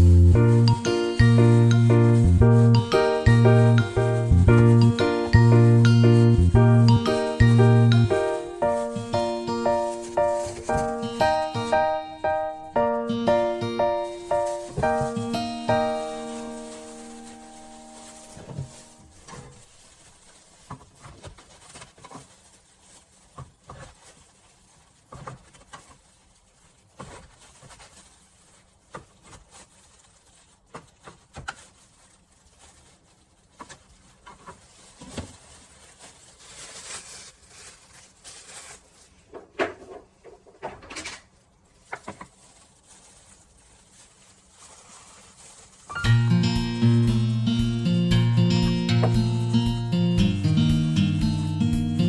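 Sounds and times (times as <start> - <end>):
kitchen items clicking and knocking: 39.2 - 42.3.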